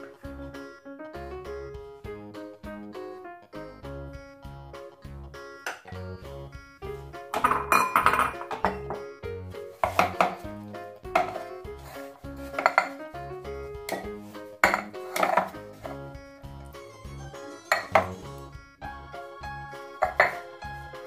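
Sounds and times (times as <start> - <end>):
background music with bass line: 0.0 - 21.0
metal muffin tin clanking: 5.7 - 6.0, 7.3 - 9.0, 9.8 - 10.5, 11.1 - 13.0, 13.9 - 16.0, 17.7 - 18.2, 20.0 - 20.4.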